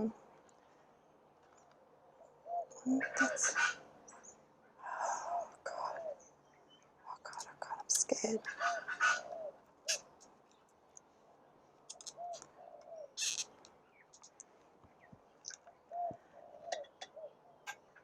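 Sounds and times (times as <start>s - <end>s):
bird cooing: 2.4s - 3.8s, 4.8s - 6.3s, 8.4s - 10.0s, 11.9s - 13.4s, 15.5s - 18.0s
faint clicks: 11.9s - 17.2s.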